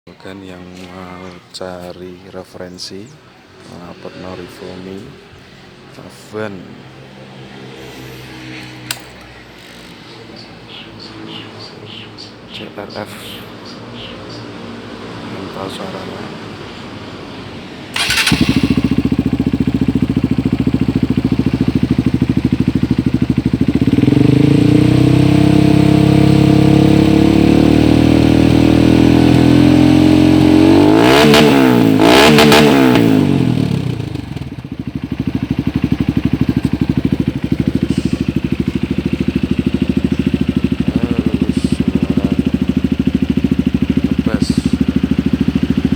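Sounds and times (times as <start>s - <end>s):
motorcycle engine revving: 18.0s - 45.9s.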